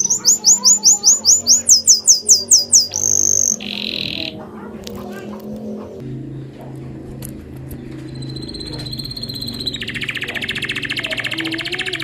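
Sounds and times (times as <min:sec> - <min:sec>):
bird whistling and trilling: 0:00.0 - 0:04.4, 0:08.1 - 0:12.0
steady low hum: 0:00.0 - 0:12.0.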